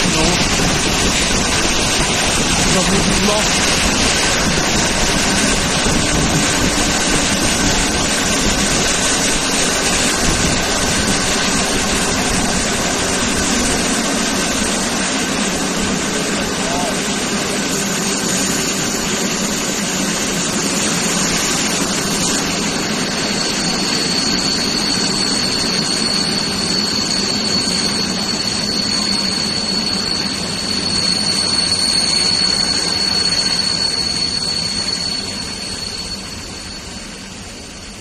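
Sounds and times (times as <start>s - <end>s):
train running rumble: 0.0s - 38.0s
thin high whine: 17.6s - 37.9s.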